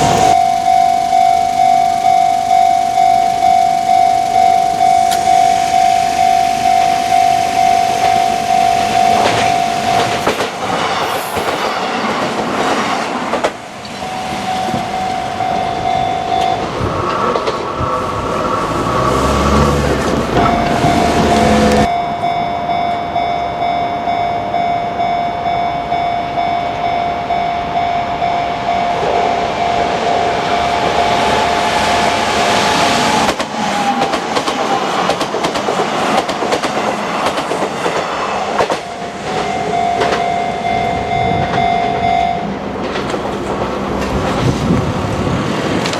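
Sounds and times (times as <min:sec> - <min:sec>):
crossing warning bell: 0:00.0 - 0:11.7, 0:13.5 - 0:17.4, 0:20.2 - 0:32.6, 0:38.4 - 0:44.2
train wheels clattering: 0:32.5 - 0:40.3.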